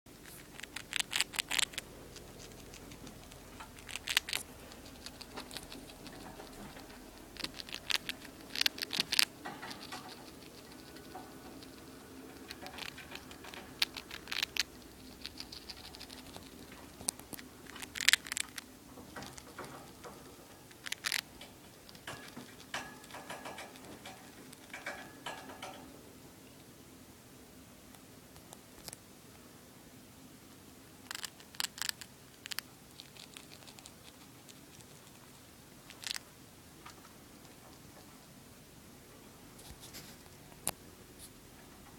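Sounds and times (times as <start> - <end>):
small animal crunching cracker: 0.1 - 25.8, 31.0 - 37.8.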